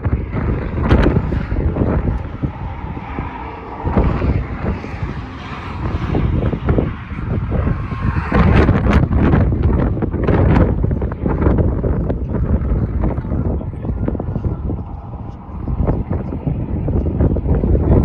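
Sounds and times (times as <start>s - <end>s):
wind buffeting the microphone: 0.0s - 18.0s.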